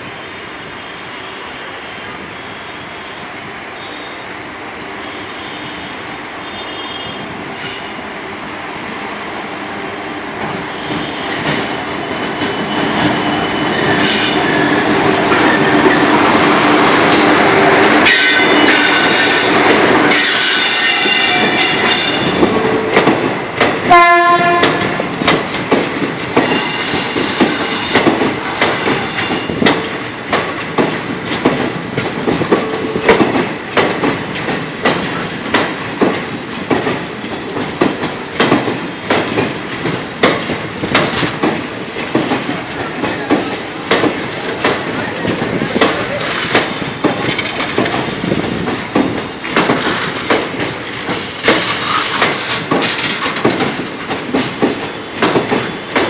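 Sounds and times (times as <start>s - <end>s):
train running past: 0.0s - 56.0s
wheels clacking over rail joints: 10.3s - 56.0s
train horn note: 18.0s - 22.4s, 23.9s - 25.1s.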